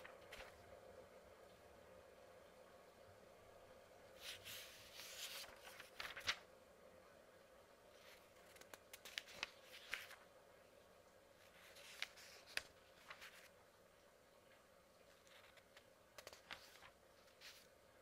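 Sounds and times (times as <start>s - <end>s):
paper pages turning: 0.0s - 0.7s, 4.2s - 6.5s, 7.9s - 10.3s, 11.4s - 13.6s, 15.0s - 17.7s.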